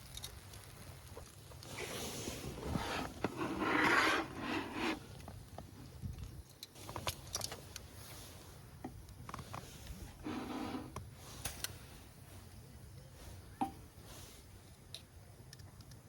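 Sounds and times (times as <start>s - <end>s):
rubbing and scraping: 1.7s - 5.2s, 9.4s - 11.0s.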